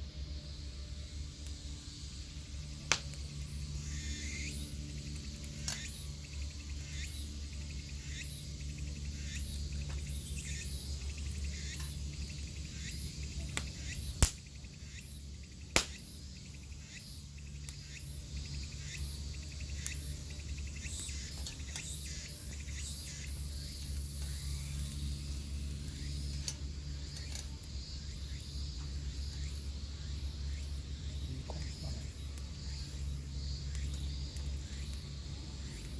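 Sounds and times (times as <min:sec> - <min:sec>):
insects chirping: 0:00.0 - 0:35.9
sharp clicks: 0:02.9 - 0:03.2, 0:05.1 - 0:05.9, 0:13.5 - 0:14.5, 0:15.7 - 0:16.1.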